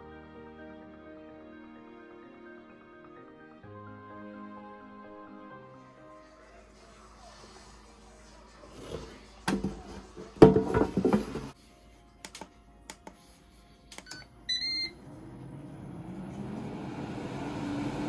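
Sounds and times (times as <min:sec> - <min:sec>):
clatter and knocks: 0:09.5 - 0:11.6
short beep: 0:14.0 - 0:15.0
air fryer fan whirring: 0:14.2 - 0:18.0.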